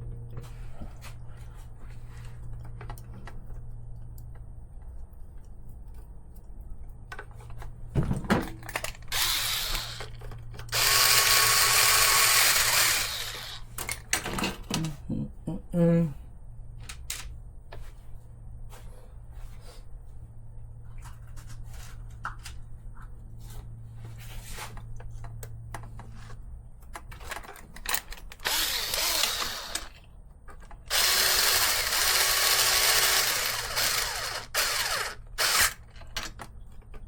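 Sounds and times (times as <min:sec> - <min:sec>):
power driver whirring: 0:09.1 - 0:13.7, 0:28.4 - 0:29.9, 0:30.9 - 0:35.9.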